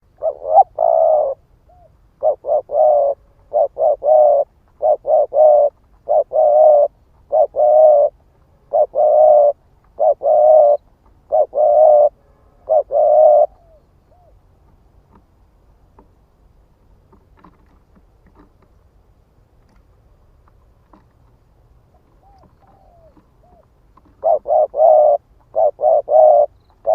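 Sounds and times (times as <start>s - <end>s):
dove cooing: 0.0s - 14.4s, 21.9s - 26.9s.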